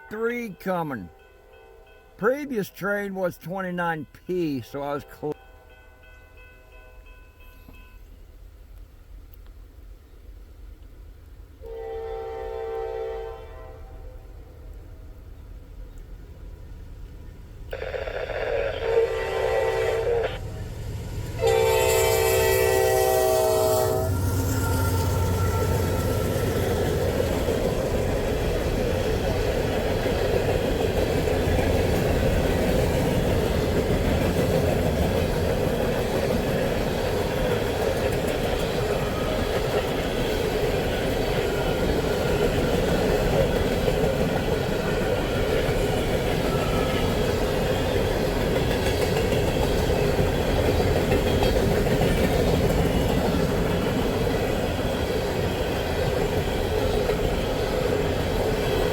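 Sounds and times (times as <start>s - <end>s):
train rumbling past: 18.9s - 58.9s
wheels clickety-clack: 24.5s - 58.9s.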